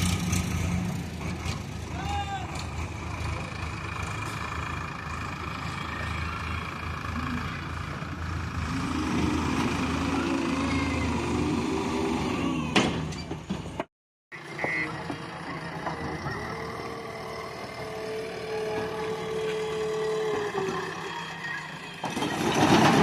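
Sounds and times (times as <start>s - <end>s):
diesel engine of heavy machinery: 0.0s - 23.0s.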